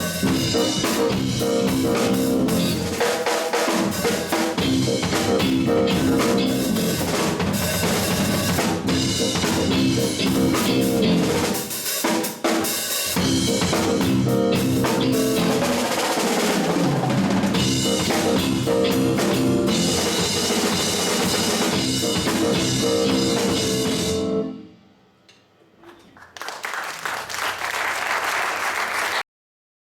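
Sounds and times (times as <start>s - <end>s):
drum kit solo: 0.0s - 24.7s
audience applause: 26.1s - 29.2s.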